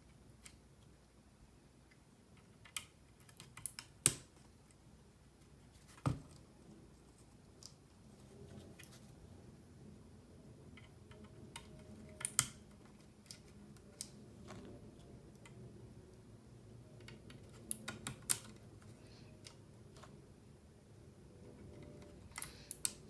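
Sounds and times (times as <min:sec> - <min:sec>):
keyboard parts clicking: 0:10.7 - 0:14.2, 0:17.0 - 0:20.1.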